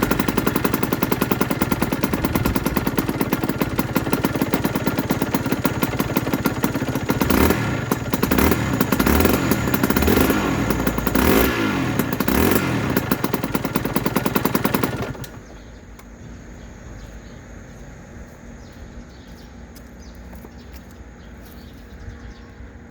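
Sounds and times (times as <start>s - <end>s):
two-stroke engine crackling: 0.0s - 16.2s.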